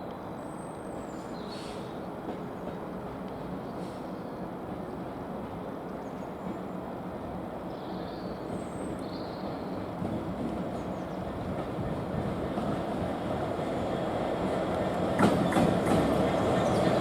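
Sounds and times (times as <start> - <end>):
diesel train rumble: 8.5 - 17.0.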